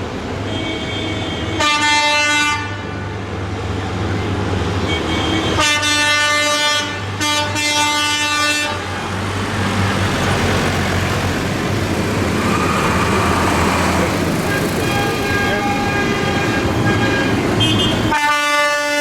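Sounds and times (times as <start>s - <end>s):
tractor engines running: 8.9s - 18.1s
vehicle horn blasts: 14.4s - 19.0s.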